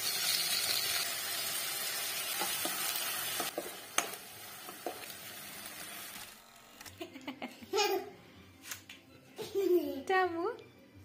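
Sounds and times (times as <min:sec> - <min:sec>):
vegetables sizzling in a frying pan: 0:00.0 - 0:06.5.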